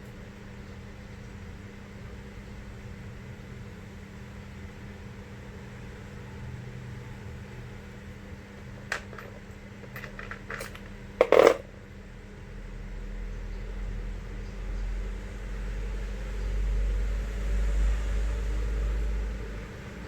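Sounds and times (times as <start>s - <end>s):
steady background hum: 7.0s - 12.1s.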